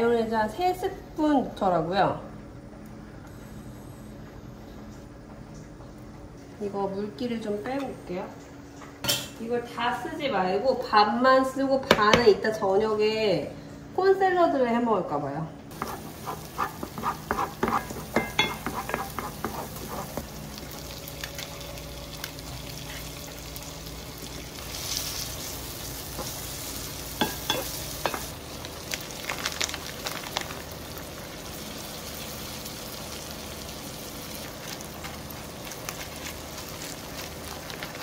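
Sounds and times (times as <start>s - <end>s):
food sizzling in a pan: 15.7s - 38.0s.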